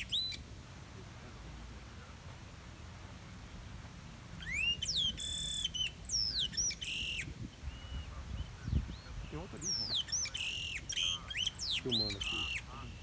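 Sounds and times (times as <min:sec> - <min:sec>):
blackbird singing: 0:04.5 - 0:13.0.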